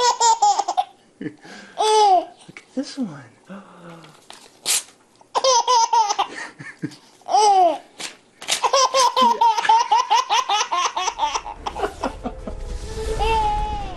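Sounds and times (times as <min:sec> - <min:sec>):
girl giggling: 0:09.1 - 0:09.9.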